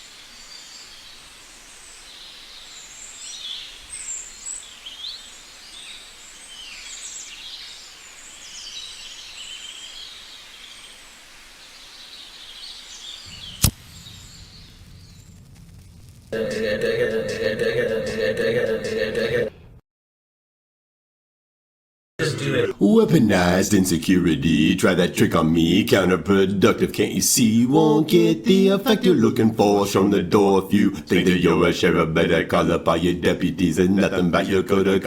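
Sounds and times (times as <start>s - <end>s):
outdoor hiss: 0.0s - 16.8s
birds chirping and trilling: 0.3s - 15.3s
music: 16.4s - 19.5s.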